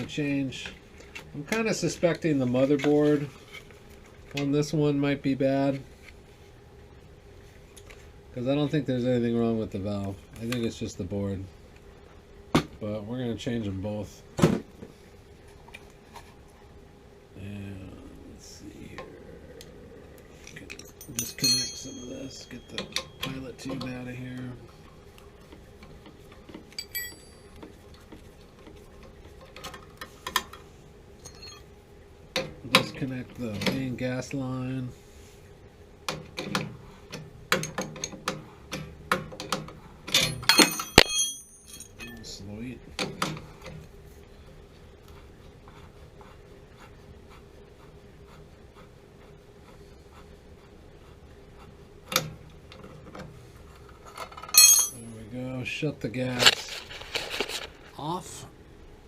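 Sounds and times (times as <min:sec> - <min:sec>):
faint steady hum: 0:00.0 - 0:59.0
ringing metal clink: 0:20.7 - 0:23.3, 0:26.8 - 0:27.5, 0:31.3 - 0:31.6, 0:40.2 - 0:42.3, 0:54.6 - 0:55.1.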